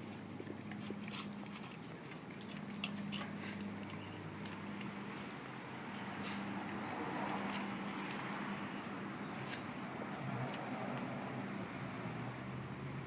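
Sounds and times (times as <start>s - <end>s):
dog chewing and gnawing: 0.4s - 3.8s.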